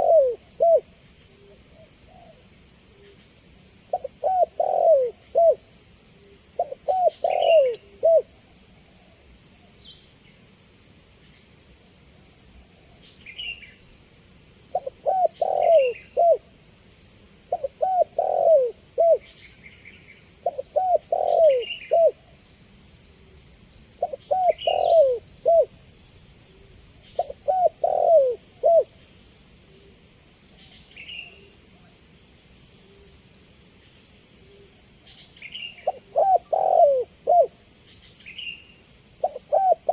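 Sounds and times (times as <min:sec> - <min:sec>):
dove cooing: 0:00.0 - 0:00.9, 0:03.9 - 0:05.6, 0:06.6 - 0:08.3, 0:14.7 - 0:16.5, 0:17.5 - 0:19.3, 0:20.4 - 0:22.2, 0:24.0 - 0:25.7, 0:27.2 - 0:28.9, 0:35.8 - 0:37.6, 0:39.2 - 0:39.9
steady high hiss: 0:00.0 - 0:39.9
faint high bird chirps: 0:06.6 - 0:08.2, 0:24.0 - 0:25.7.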